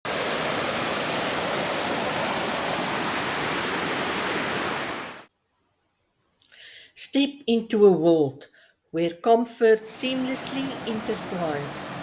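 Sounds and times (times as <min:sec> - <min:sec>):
rushing water: 0:00.0 - 0:05.3, 0:09.9 - 0:12.0.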